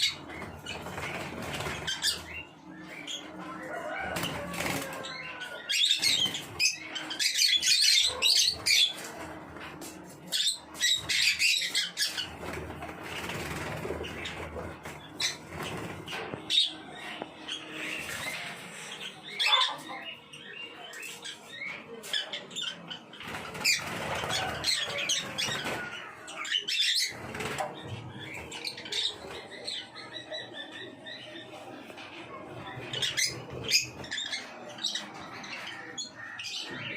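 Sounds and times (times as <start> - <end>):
birds flapping wings: 0.0 - 2.4, 4.1 - 5.1, 10.8 - 16.5, 23.2 - 26.1, 27.0 - 29.2
birds chirping and squawking: 0.0 - 36.9.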